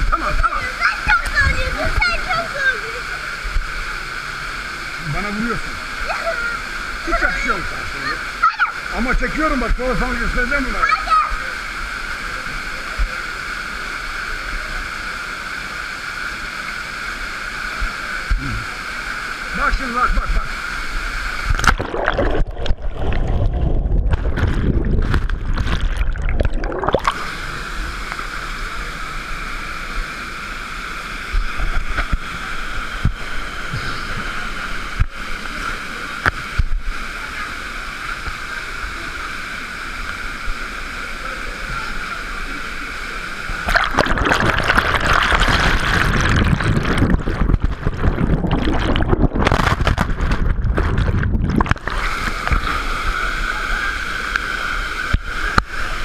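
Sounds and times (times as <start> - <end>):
waterfall rushing and splashing: 41.8 - 56.0.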